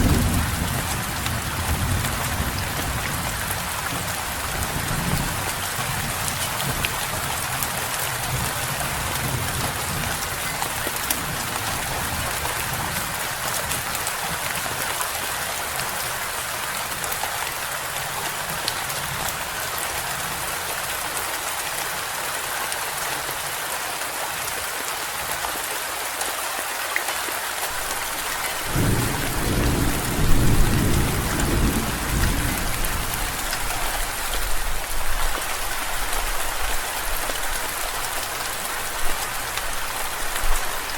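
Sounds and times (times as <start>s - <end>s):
steady rain: 0.0s - 40.9s
low thunder roll: 28.6s - 33.5s.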